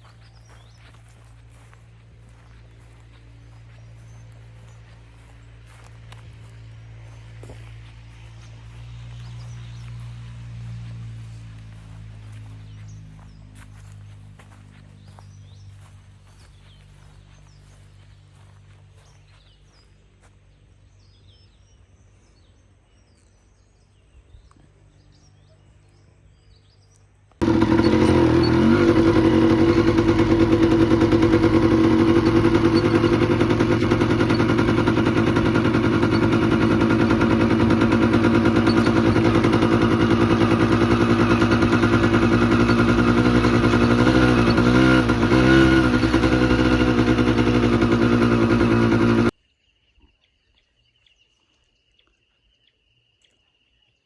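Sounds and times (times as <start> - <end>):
motorcycle engine running: 0.0 - 19.8, 27.4 - 49.3
faint bird chirps: 24.3 - 54.0.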